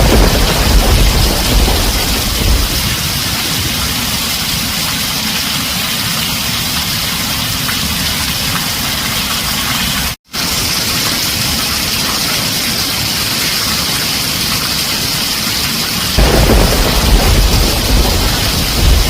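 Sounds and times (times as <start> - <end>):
low rumble of thunder: 0.0 - 4.6, 16.2 - 19.0
heavy rain on a tin roof: 0.0 - 19.0.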